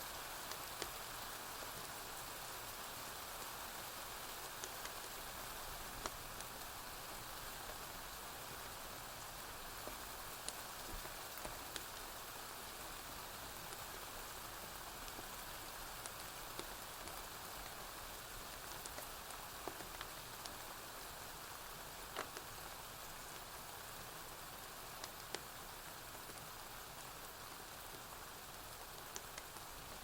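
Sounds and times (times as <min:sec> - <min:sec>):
rain falling on a roof: 0:00.0 - 0:30.0
wood fire crackling and popping: 0:16.0 - 0:17.8, 0:18.5 - 0:20.6, 0:22.1 - 0:23.4, 0:24.9 - 0:26.4, 0:28.8 - 0:30.0.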